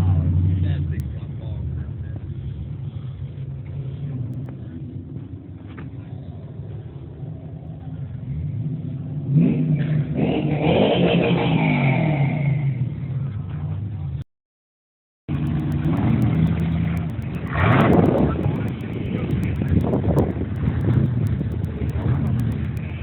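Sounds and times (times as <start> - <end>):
car engine revving: 0.0 - 13.1, 15.3 - 23.0.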